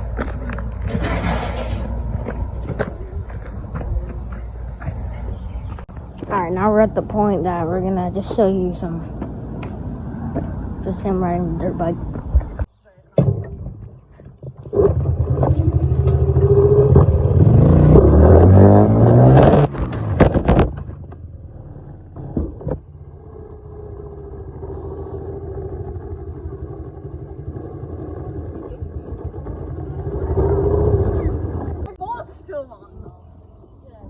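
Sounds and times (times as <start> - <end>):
dirt bike engine revving: 14.8 - 20.1, 23.2 - 31.8.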